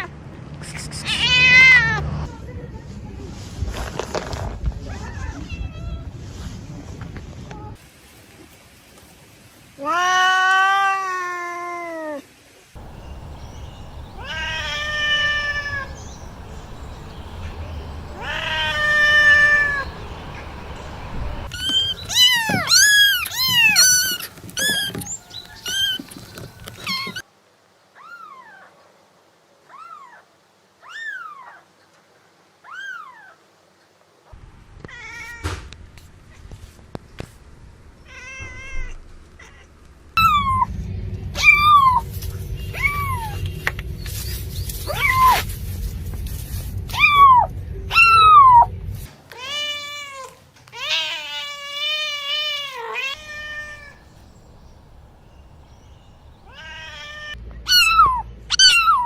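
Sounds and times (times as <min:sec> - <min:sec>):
cats meowing: 0:01.0 - 0:02.1, 0:12.8 - 0:27.2, 0:42.7 - 0:43.4, 0:44.9 - 0:45.4, 0:46.9 - 0:48.7, 0:49.3 - 0:54.2, 0:56.4 - 0:59.0.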